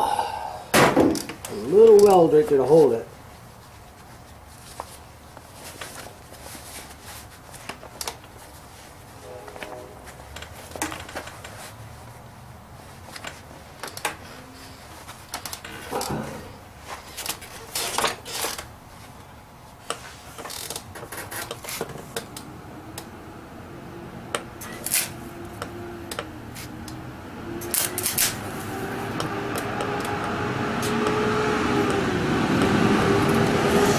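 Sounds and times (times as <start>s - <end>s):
faint hum: 0.0s - 0.7s.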